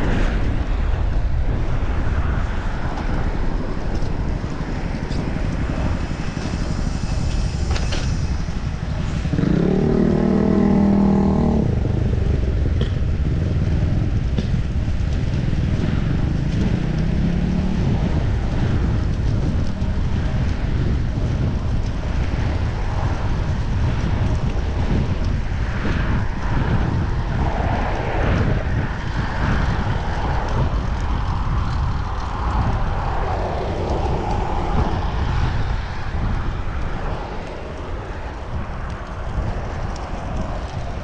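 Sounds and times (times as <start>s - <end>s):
wind rumble on microphone: 0.0s - 41.0s
vehicle engine passing: 9.1s - 12.8s.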